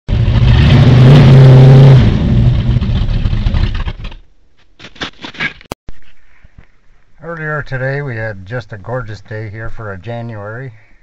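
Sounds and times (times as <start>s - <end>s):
truck engine revving: 0.1s - 4.0s.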